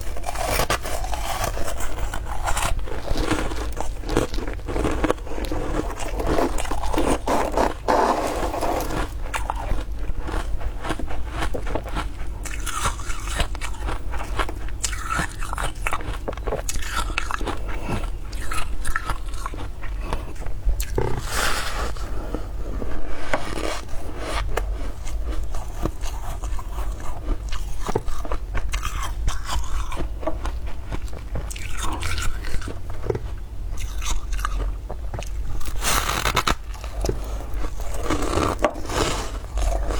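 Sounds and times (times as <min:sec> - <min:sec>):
scraping strokes: 0:06.4 - 0:09.1, 0:21.2 - 0:24.6.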